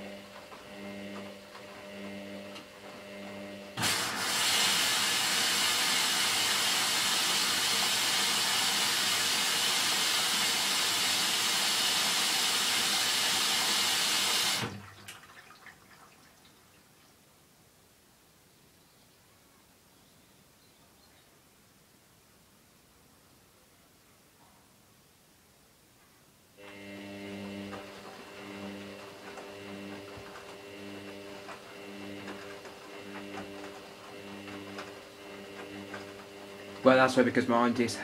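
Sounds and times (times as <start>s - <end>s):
washing machine pulsing hum: 0.0s - 16.8s, 26.6s - 38.0s
water rushing into washing machine: 0.0s - 16.8s, 26.6s - 37.7s.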